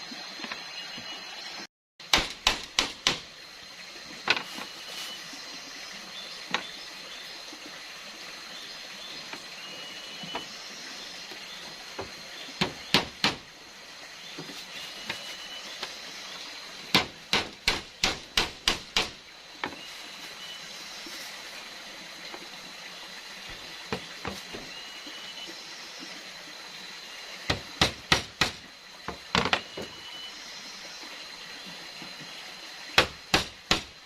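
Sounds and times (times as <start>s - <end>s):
sharp knocks: 2.1s - 3.3s, 16.9s - 19.2s.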